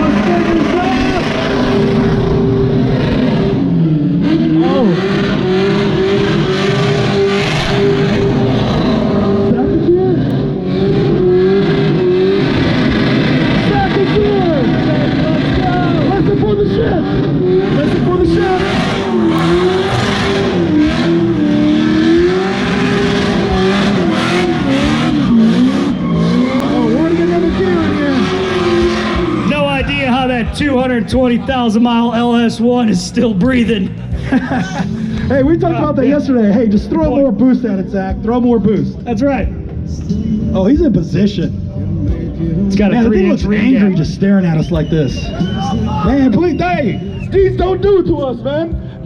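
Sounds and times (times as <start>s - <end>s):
car engine revving hard: 0.0s - 36.7s.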